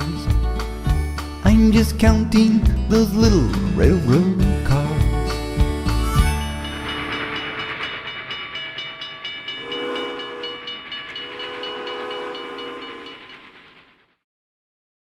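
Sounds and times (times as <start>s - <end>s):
train clattering: 6.3s - 14.2s
train whistle blasts: 9.6s - 13.0s.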